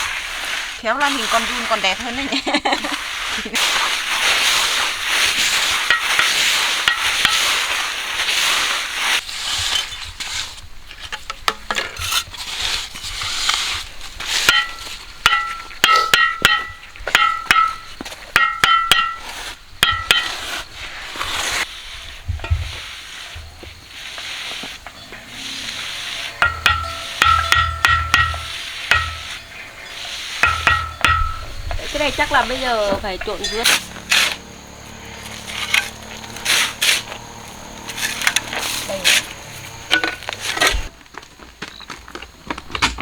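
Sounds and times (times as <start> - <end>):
metal tool scraping cement mix: 0.0 - 10.6, 11.8 - 16.3, 18.4 - 40.9
ringing metal clinks: 24.9 - 36.4.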